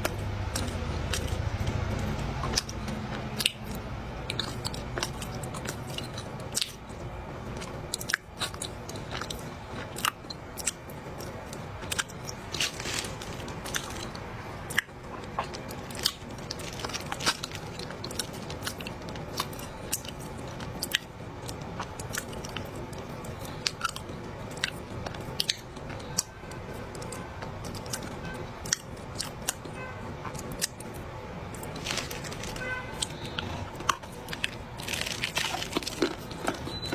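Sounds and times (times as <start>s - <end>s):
chewing dry clay: 0.0s - 36.9s
sharp crunches and cracks: 10.0s - 20.1s, 31.5s - 36.9s.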